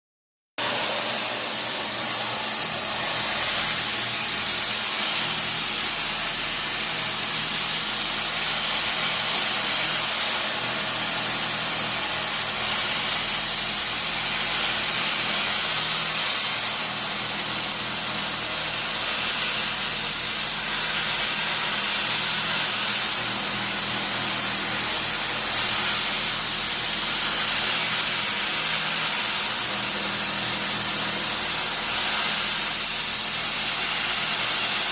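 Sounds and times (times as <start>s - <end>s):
loud machine hiss: 0.6s - 34.9s.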